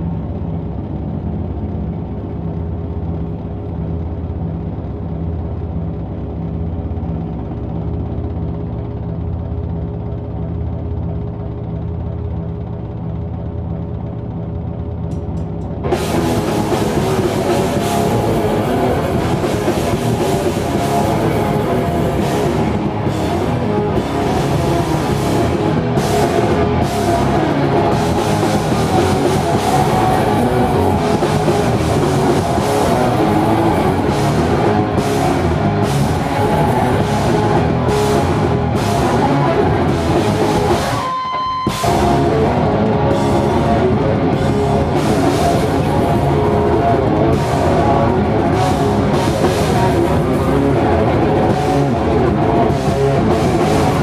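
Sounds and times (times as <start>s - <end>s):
distorted guitar: 15.0s - 54.0s
metal band playing loudly: 15.7s - 54.0s
pounding drum kit: 15.8s - 54.0s.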